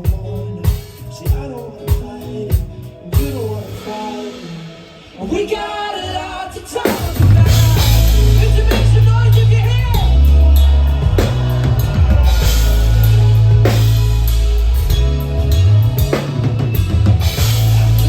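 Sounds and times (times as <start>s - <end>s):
drum kit beat: 0.0s - 4.8s, 6.8s - 18.0s
live rock band playing: 0.0s - 18.0s
heavy bass: 7.0s - 18.0s.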